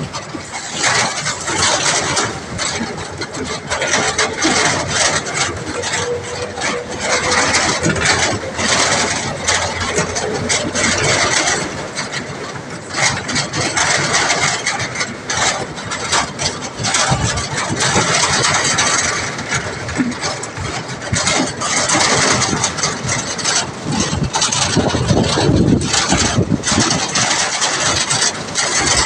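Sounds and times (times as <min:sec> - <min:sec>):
loud rushing noise: 0:00.0 - 0:28.6
vehicle engine running: 0:00.0 - 0:29.0.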